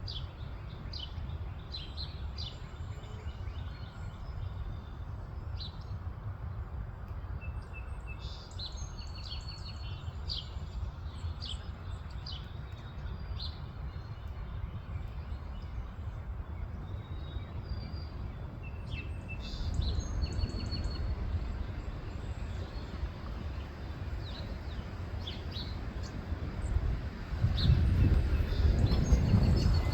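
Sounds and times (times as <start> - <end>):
songbirds chirping: 0.0 - 29.9
steady low rumble: 13.6 - 29.9.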